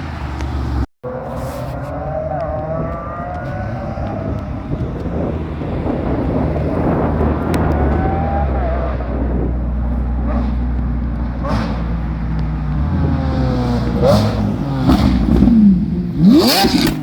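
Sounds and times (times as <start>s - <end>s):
car engine running: 0.0s - 17.0s
engine whine: 0.0s - 17.0s.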